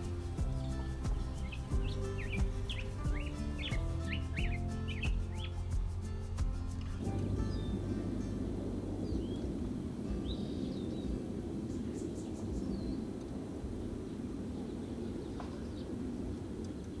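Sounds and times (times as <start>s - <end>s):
bird chirps: 0.0s - 5.6s
steady low rumble: 0.0s - 17.0s.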